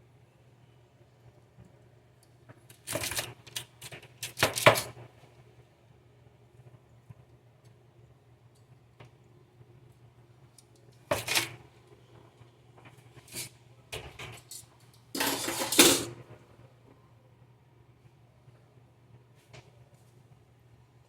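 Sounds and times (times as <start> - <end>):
dishes and utensils clattering: 15.2 - 16.2.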